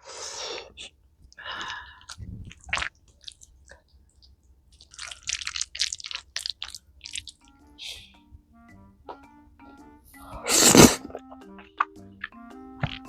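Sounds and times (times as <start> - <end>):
person chewing food: 0.6 - 8.3.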